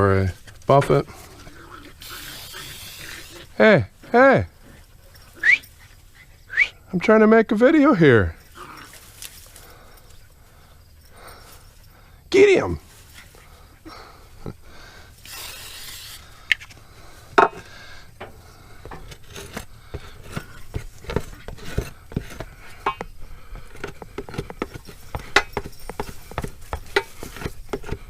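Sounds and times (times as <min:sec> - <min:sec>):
short hiss: 0:15.2 - 0:16.8
rubbing and scraping rubber: 0:18.7 - 0:28.0.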